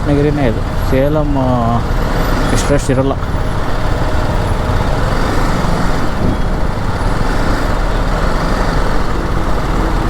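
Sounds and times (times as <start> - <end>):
motorcycle engine: 0.0 - 10.0
other vehicles: 0.0 - 10.0.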